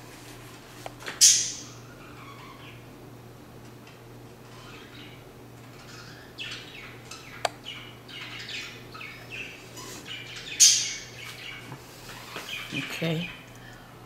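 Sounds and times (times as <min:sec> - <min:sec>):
bird chirping: 0:04.5 - 0:13.4.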